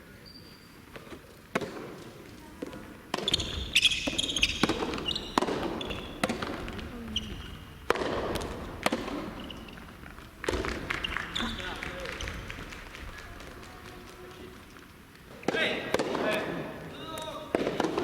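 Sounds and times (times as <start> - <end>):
ball bouncing on court: 1.0 - 13.1, 17.5 - 18.0
tennis ball hit by rackets: 1.1 - 10.9, 15.4 - 16.5, 17.5 - 18.0
short high squeaks: 3.2 - 6.2.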